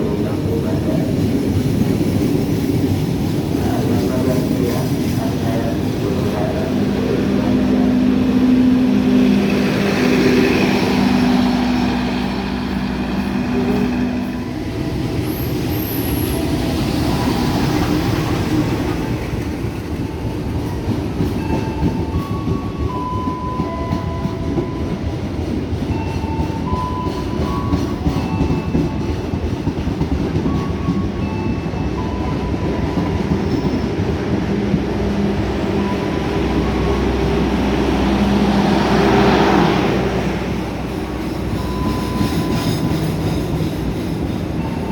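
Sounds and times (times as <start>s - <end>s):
train wheels clattering on rails: 0.0s - 44.9s
low two-note train tone: 5.2s - 25.2s, 30.3s - 44.9s.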